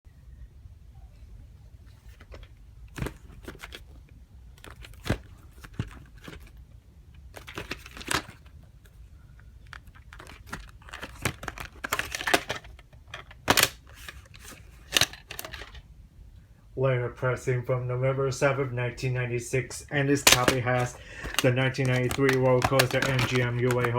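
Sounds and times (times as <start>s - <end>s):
plastic tape cases clicking: 2.1s - 3.9s, 4.6s - 6.6s, 7.2s - 8.5s, 9.6s - 15.8s, 20.2s - 23.9s.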